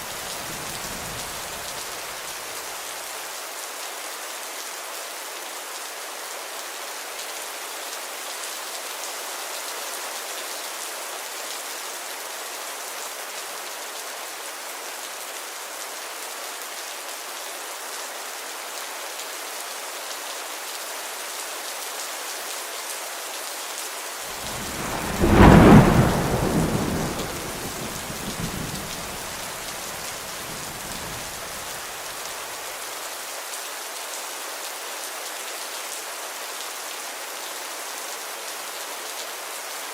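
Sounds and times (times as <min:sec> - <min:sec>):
steady rain: 0:00.0 - 0:39.9
thunder clap and rumble: 0:24.3 - 0:31.7.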